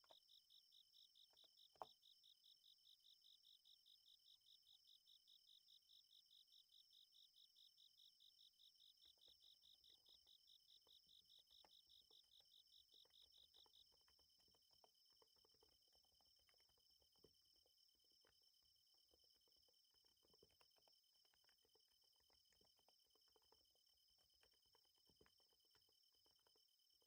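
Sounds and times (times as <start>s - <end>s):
insects chirping: 0.0s - 27.0s
soft typing on keyboard: 10.7s - 27.0s.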